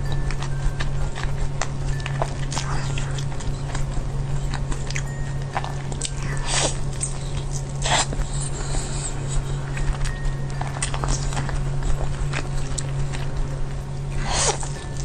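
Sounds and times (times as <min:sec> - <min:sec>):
steady low hum: 0:00.0 - 0:15.0
wet chewing clicks: 0:09.2 - 0:15.0.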